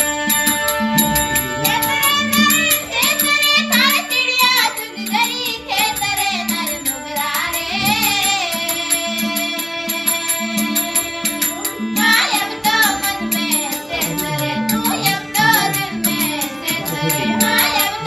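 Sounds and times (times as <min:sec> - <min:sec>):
held drone notes: 0:00.0 - 0:04.2, 0:13.8 - 0:18.0
repeating percussion beat: 0:00.0 - 0:08.7, 0:12.1 - 0:18.0
person singing ornamented melody: 0:00.1 - 0:03.3, 0:13.9 - 0:18.0.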